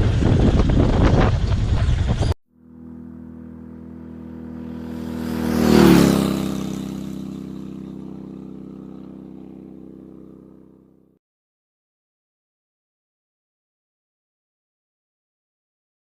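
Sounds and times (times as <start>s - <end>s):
motorcycle passing by: 0.0s - 11.2s.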